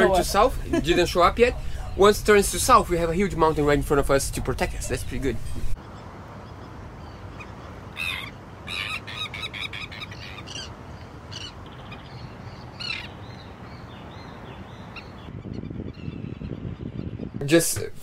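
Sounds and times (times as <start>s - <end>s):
wind: 0.0s - 18.0s
seabird calls: 5.0s - 17.3s.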